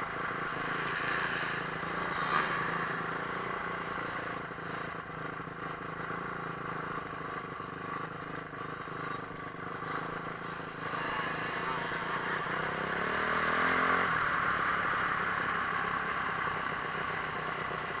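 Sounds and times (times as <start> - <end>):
motocross bike engine revving: 0.1 - 5.0, 8.8 - 15.2.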